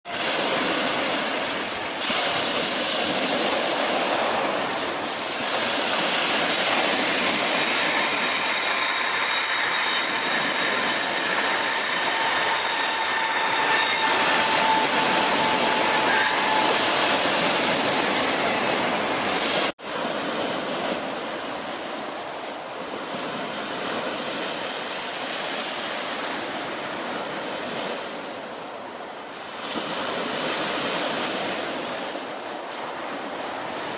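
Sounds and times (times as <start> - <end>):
surf: 0.0 - 33.9
train passing rumble: 3.3 - 19.7
wheel squeal: 6.5 - 19.7.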